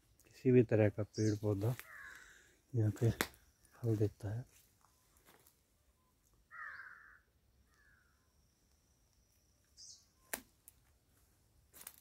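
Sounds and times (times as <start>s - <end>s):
bird cawing: 1.2s - 2.7s, 6.5s - 8.3s
high bird chirp: 9.6s - 10.3s.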